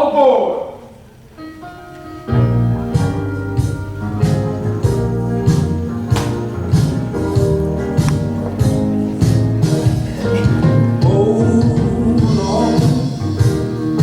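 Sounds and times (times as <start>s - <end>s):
upbeat band music with guitar: 1.4s - 14.0s.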